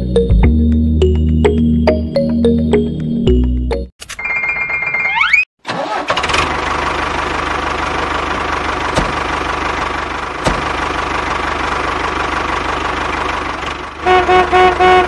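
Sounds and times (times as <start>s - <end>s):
diesel tractor engine idling: 5.8s - 15.0s.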